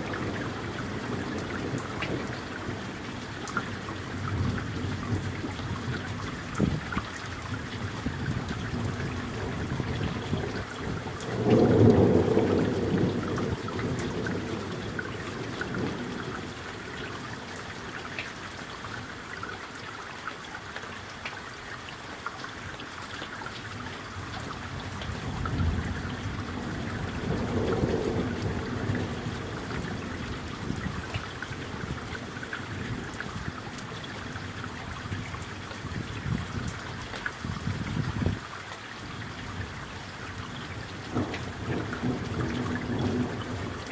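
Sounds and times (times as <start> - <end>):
steady rain: 0.0 - 43.9
distant thunder rumble: 8.1 - 16.8, 24.8 - 33.7, 41.0 - 43.9.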